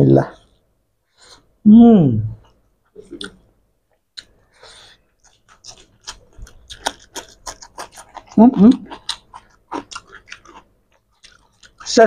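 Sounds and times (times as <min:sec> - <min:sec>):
wet chewing mouth clicks: 0:04.2 - 0:12.0.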